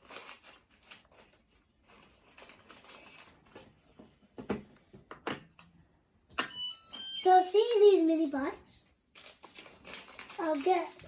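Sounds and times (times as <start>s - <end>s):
plastic parts rustling: 0.0s - 4.6s, 9.0s - 11.0s
plastic parts clicking: 9.1s - 11.0s.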